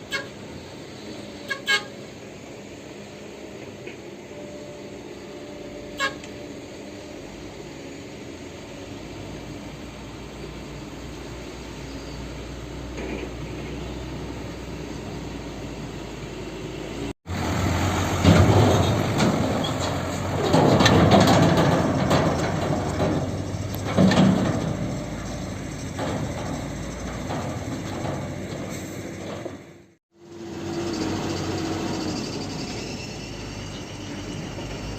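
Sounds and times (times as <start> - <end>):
truck engine running: 12.4 - 34.9
truck body clattering and rattling: 18.1 - 30.0
heavy clanks: 18.2 - 29.9.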